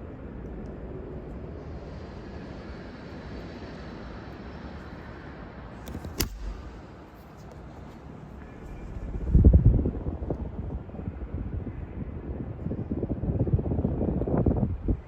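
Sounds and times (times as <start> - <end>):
ceiling fan air rush: 0.0 - 15.0
sharp click: 5.8 - 6.8
low rumble on microphone: 8.0 - 15.0.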